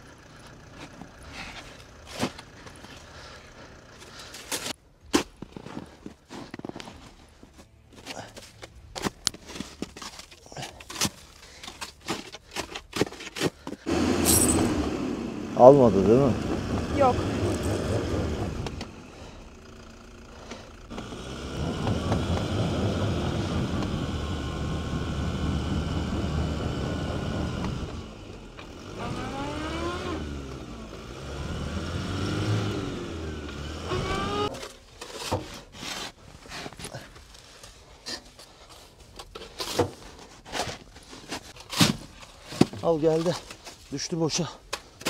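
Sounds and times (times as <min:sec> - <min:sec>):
knocks and crunches: 0:04.0 - 0:14.8
engine revving in snow: 0:13.9 - 0:34.7.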